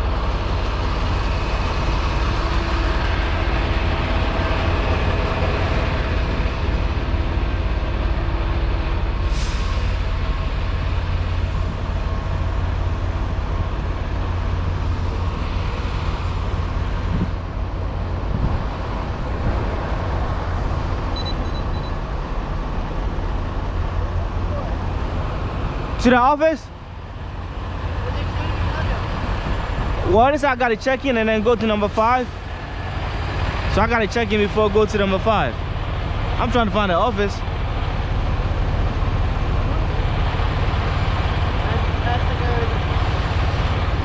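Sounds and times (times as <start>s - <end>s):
truck engine rumble from the cab: 0.0s - 44.0s
faint short high beeps: 21.1s - 22.0s.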